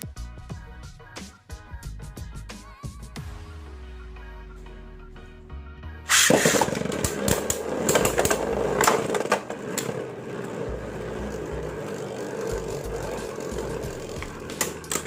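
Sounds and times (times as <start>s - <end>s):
spinning top launch: 6.1s - 10.6s
spinning top whirring and scraping: 6.1s - 15.0s.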